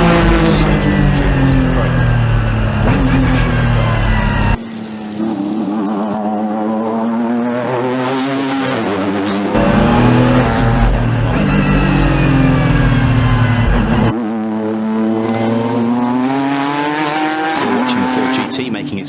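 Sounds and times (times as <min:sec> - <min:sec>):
thinner engine note: 0:00.0 - 0:07.2, 0:09.5 - 0:17.4
race car engines at high revs: 0:00.0 - 0:19.0.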